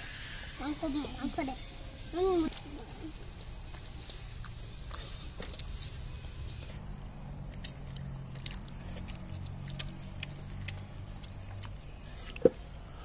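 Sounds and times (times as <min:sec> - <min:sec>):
low steady hum: 0:00.0 - 0:13.0
chewing clicks: 0:02.8 - 0:12.5.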